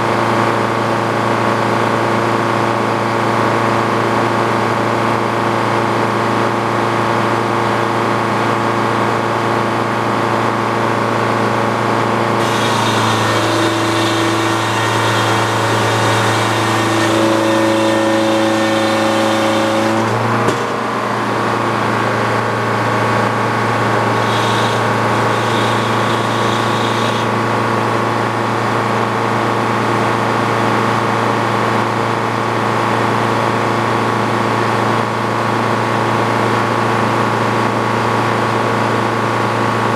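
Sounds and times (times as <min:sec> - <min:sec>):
sawmill engine running: 0:12.0 - 0:28.6
circular saw cutting log: 0:12.3 - 0:27.9.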